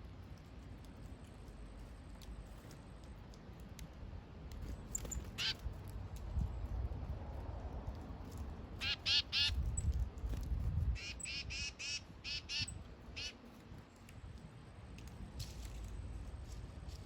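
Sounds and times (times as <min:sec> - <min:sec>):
bird harsh calls: 0:04.9 - 0:05.6, 0:08.8 - 0:09.6, 0:11.0 - 0:13.4.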